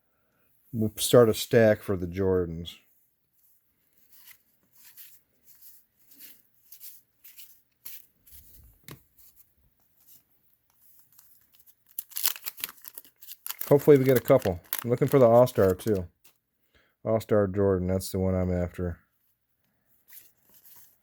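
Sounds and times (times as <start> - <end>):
trading cards brushing and clicking: 3.4 - 16.4, 20.0 - 21.0.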